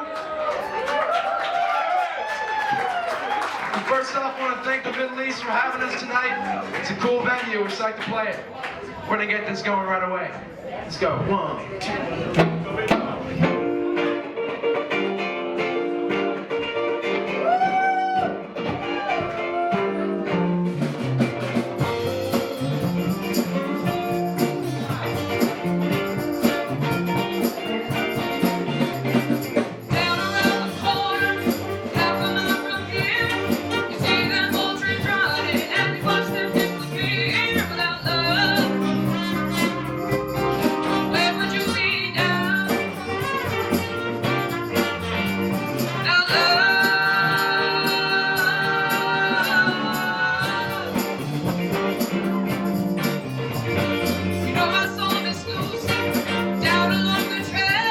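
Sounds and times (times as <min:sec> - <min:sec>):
rock band playing: 0:12.3 - 0:57.9.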